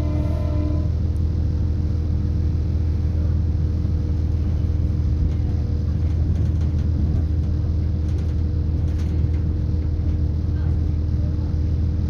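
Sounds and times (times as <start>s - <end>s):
steady humming tones: 0.0s - 1.4s
train running rumble: 0.0s - 12.0s.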